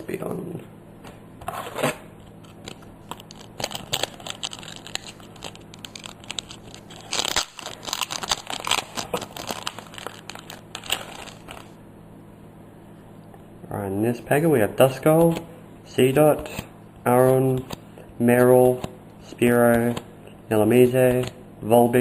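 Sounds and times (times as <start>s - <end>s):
foil pack crinkling and tearing: 2.6s - 11.8s.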